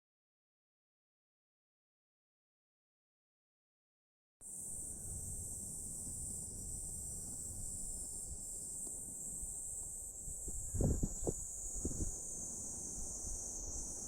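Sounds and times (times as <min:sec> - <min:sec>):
insect chorus shrilling: 0:04.4 - 0:14.0.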